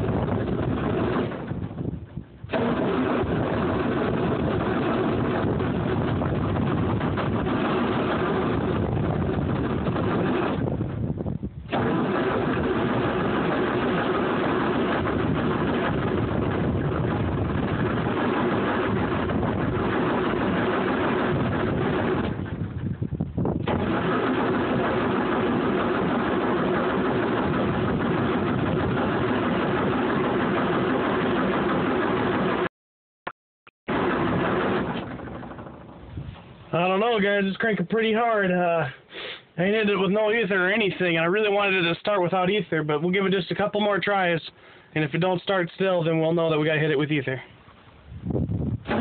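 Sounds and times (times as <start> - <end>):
starter cranking diesel engine: 2.5 - 10.6, 33.9 - 36.5.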